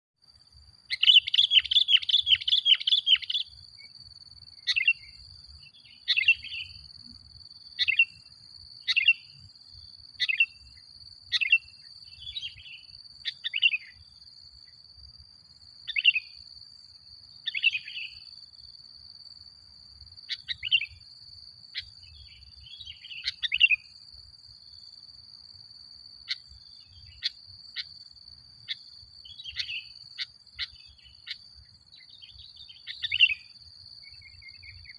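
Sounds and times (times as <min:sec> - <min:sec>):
bird chattering and chirping: 0:00.9 - 0:03.6, 0:04.6 - 0:06.8, 0:20.3 - 0:21.0, 0:21.7 - 0:23.9, 0:28.6 - 0:33.5.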